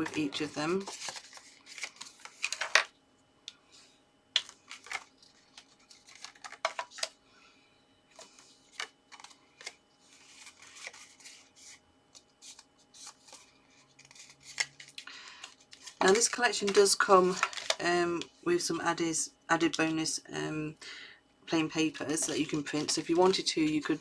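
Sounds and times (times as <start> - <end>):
stiff paper crackling and tapping: 4.3 - 7.1.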